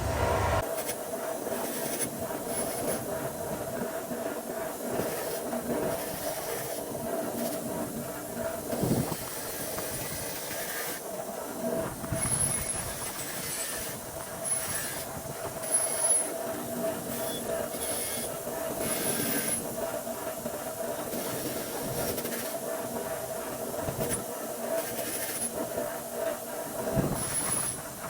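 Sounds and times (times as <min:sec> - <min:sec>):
machine whining and hissing: 0:00.0 - 0:00.6.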